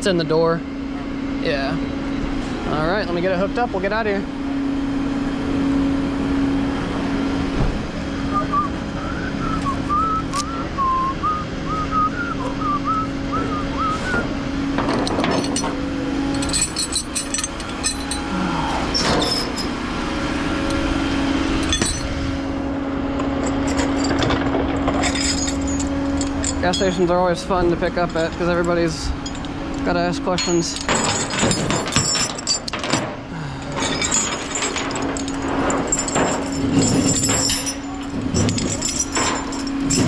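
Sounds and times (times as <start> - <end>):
truck engine humming: 0.0 - 40.0
warbling high whistle: 8.3 - 14.4
metal gear clanking: 14.8 - 19.8, 21.5 - 22.4, 23.3 - 40.0.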